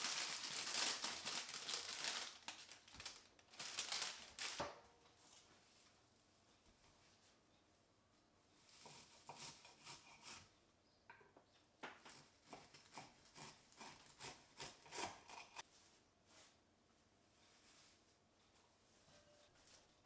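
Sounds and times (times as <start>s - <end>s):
knife cutting on wooden board: 8.8s - 10.4s.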